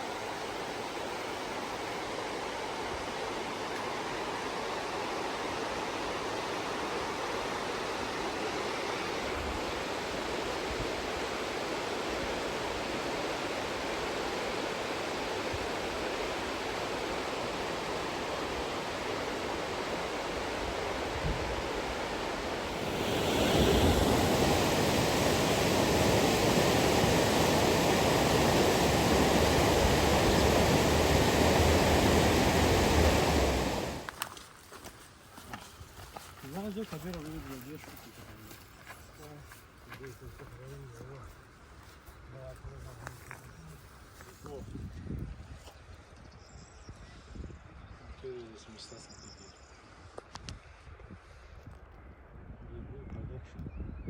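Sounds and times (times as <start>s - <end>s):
rushing water roar: 0.0s - 34.2s.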